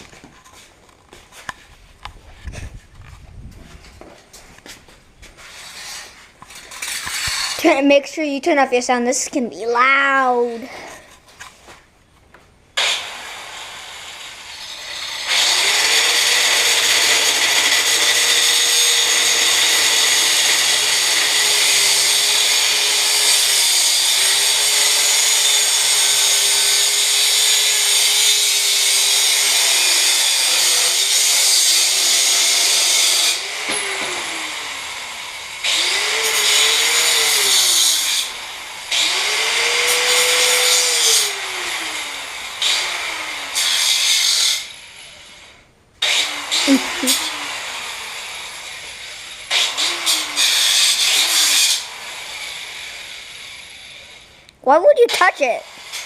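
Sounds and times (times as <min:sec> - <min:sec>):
small electric motor whirring: 0:05.5 - 0:07.6, 0:12.8 - 0:54.3.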